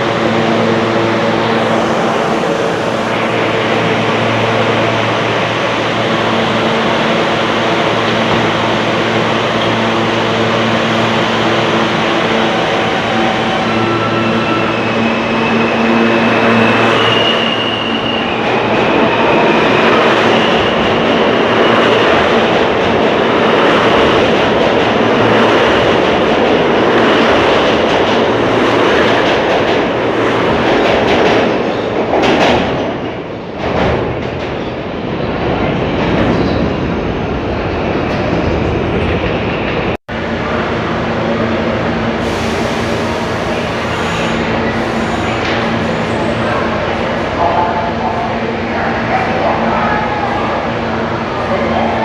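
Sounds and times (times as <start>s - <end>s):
train wheels rumbling on rail: 0.0s - 52.0s
high wheel squeal: 12.6s - 21.8s.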